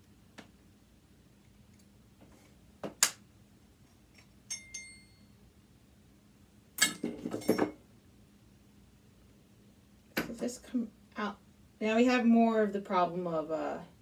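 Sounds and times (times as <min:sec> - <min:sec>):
ringing metallic clink: 0:04.5 - 0:05.4.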